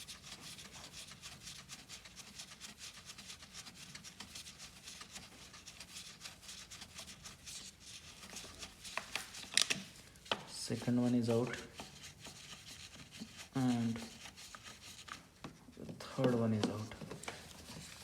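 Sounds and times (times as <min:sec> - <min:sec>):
hand tool unscrewing screw: 0:09.0 - 0:09.9.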